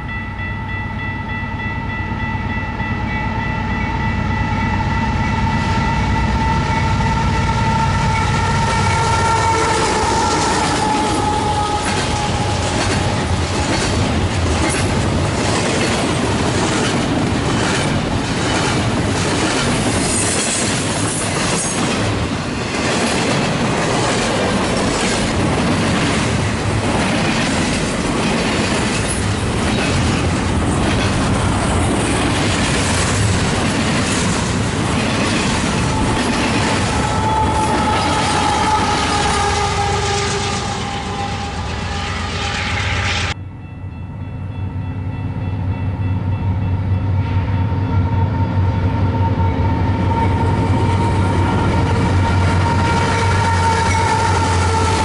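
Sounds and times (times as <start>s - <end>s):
freight train rumbling past: 0.0s - 55.0s
train horn: 3.0s - 14.0s, 35.6s - 43.4s, 47.1s - 55.0s.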